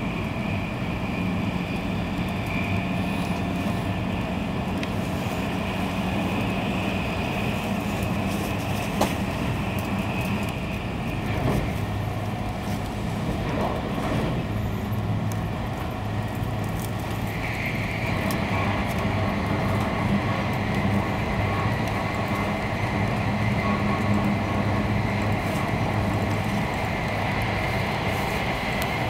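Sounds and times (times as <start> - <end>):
train cabin rumble: 0.0 - 29.0.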